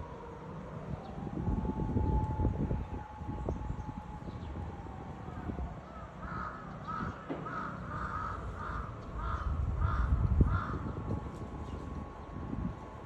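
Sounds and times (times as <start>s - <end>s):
bird calling: 6.2s - 10.9s.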